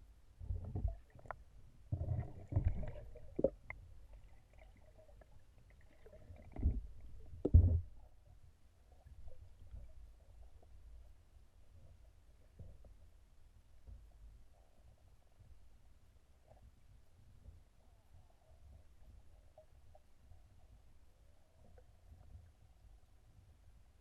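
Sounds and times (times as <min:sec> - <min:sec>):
paddle thumping water: 0:06.6 - 0:08.0.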